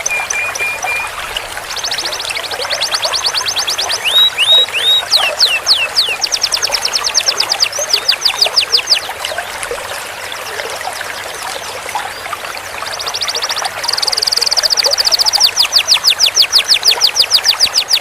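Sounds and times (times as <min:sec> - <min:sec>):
canary trilling: 0:00.0 - 0:02.0, 0:02.8 - 0:06.9.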